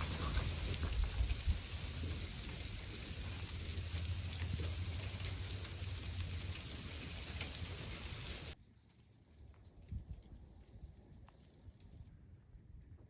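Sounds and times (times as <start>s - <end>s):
faint raindrop ticks: 0.0s - 12.1s
light rain hissing: 0.0s - 12.1s.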